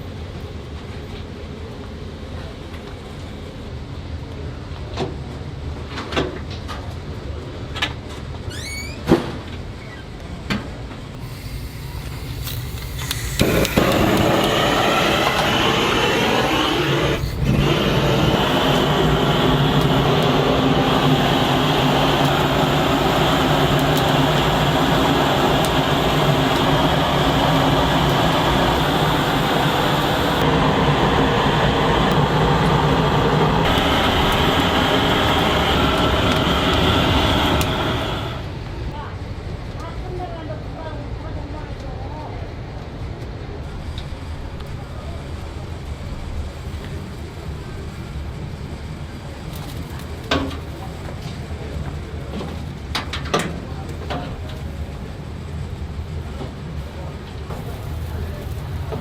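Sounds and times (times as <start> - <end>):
machine motor humming: 11.2 - 38.5.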